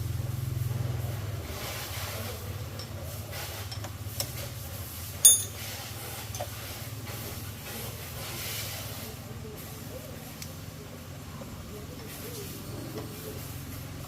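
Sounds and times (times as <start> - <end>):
steady low hum: 0.0 - 8.3
metal parts clinking: 5.2 - 5.6.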